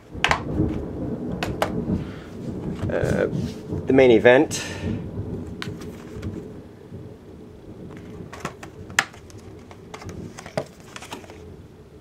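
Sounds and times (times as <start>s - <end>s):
rain and thunder rumble: 0.0s - 12.0s
plastic cases clicking: 0.2s - 0.8s, 1.4s - 1.8s, 7.9s - 11.4s.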